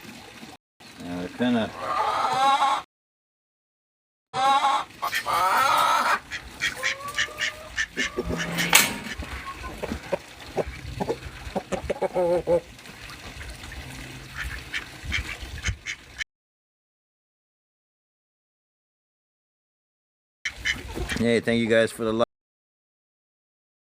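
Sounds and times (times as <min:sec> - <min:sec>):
poultry honking: 0:04.4 - 0:12.6
poultry sliding calls: 0:04.5 - 0:11.3.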